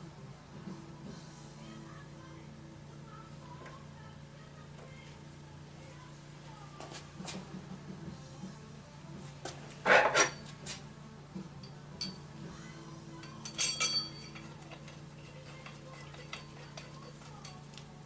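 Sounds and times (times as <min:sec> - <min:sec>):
metallic clinks of tools: 0:11.6 - 0:12.3, 0:13.2 - 0:17.9.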